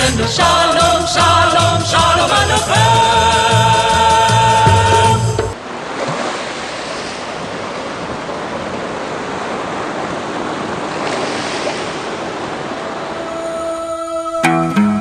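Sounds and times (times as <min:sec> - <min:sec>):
waves washing onto shore: 0:05.6 - 0:13.6.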